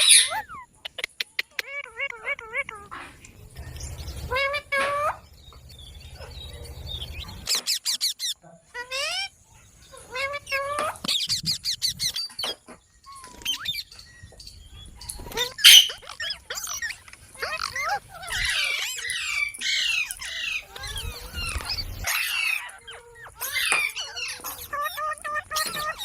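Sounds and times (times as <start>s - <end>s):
parrot squawking and calling: 0.0s - 0.8s, 4.3s - 5.3s, 15.2s - 26.0s.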